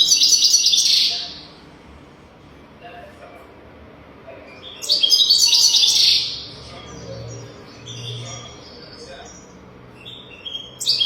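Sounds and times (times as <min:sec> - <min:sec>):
goldfinch twittering: 0:04.6 - 0:11.0.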